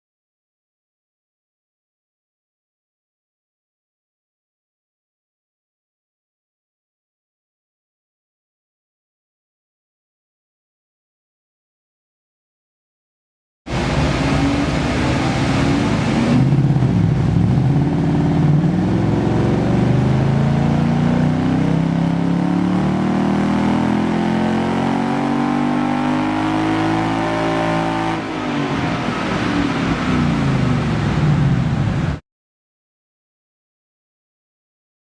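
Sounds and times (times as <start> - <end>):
engine revving on a dyno: 13.7 - 31.6.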